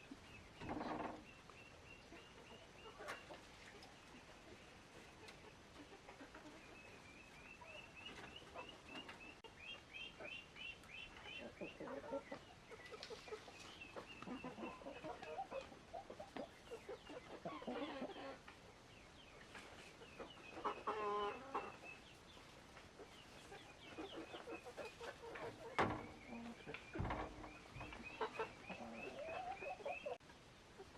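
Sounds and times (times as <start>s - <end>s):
chickens clucking: 0.0s - 30.9s.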